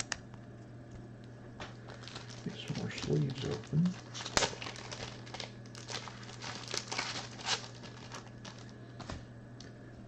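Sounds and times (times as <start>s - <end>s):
low steady hum: 0.0s - 10.0s
plastic sleeves crinkling: 1.7s - 9.0s.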